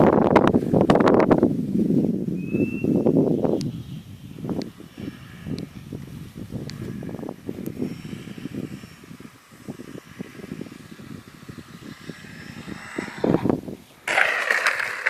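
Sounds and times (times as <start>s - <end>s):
wind rumble on microphone: 0.0s - 15.0s
model airplane motor: 6.6s - 15.0s.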